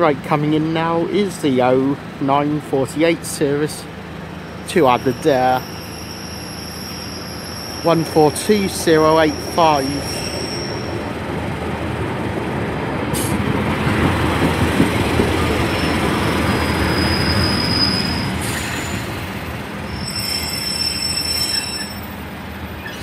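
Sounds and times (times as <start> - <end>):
train wheels and engine rumble: 0.0 - 23.0
high wheel squeal on rails: 4.2 - 11.3, 15.4 - 23.0.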